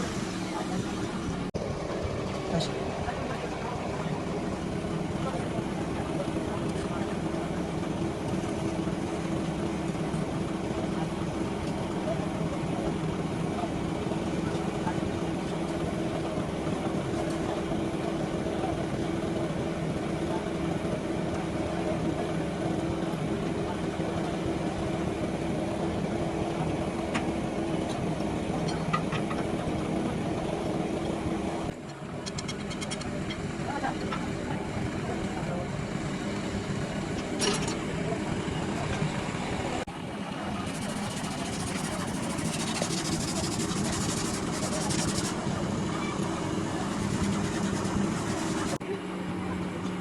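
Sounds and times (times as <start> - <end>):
motor humming: 40.5 - 48.8.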